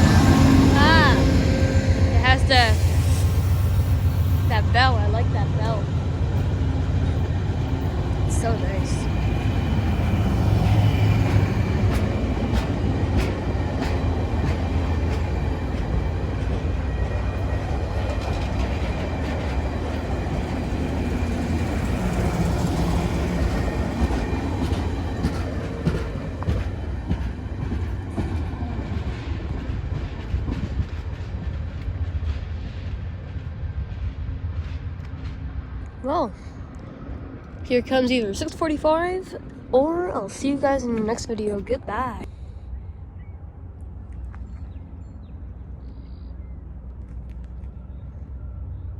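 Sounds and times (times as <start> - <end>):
train wheels clicking over joints: 0.0 - 33.5
train rumbling on rails: 0.0 - 48.9.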